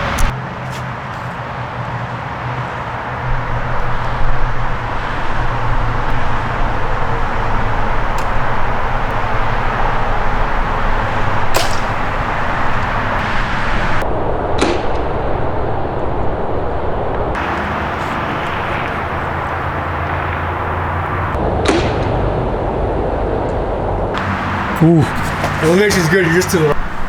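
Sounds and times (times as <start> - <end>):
rushing background noise: 0.0 - 14.0, 17.4 - 21.5, 24.0 - 27.0
arrows loosed and striking: 11.4 - 13.0.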